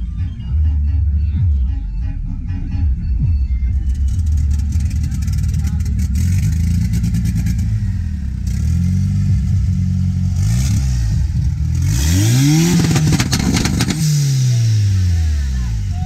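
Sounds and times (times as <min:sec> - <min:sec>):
car engine revving: 0:00.0 - 0:16.0
exhaust pops crackling: 0:03.6 - 0:15.0.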